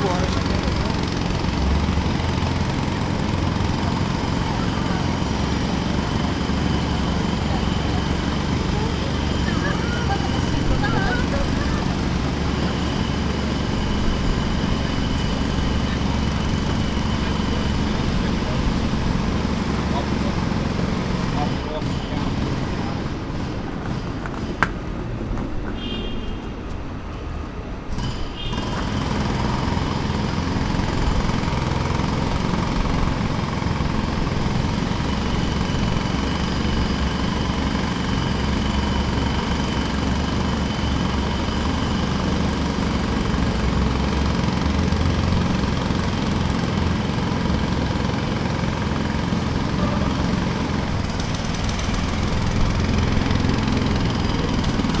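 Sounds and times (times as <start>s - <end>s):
jackhammer rattling: 0.0s - 24.9s, 27.9s - 55.0s.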